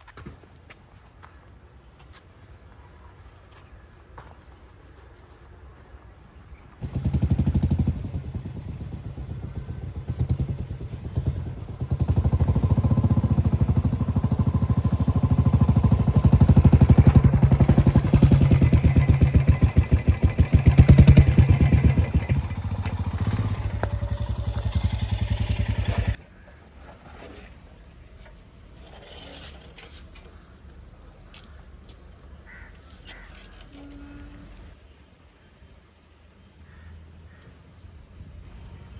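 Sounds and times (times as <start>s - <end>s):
motorcycle engine running: 6.8s - 26.2s.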